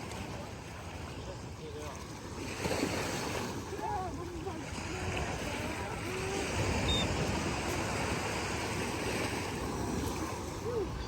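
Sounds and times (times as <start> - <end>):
surf washing: 0.0 - 11.0
wind on microphone: 4.6 - 11.0.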